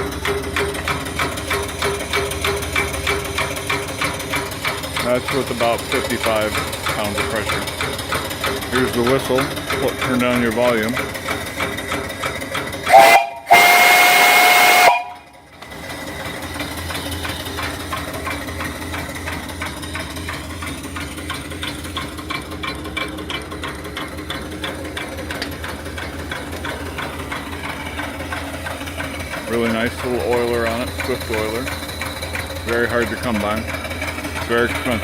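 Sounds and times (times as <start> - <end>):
steam engine rhythmic ticking: 0.0 - 35.0
steam hiss: 12.8 - 15.2
steam whistle blasts: 12.8 - 15.3.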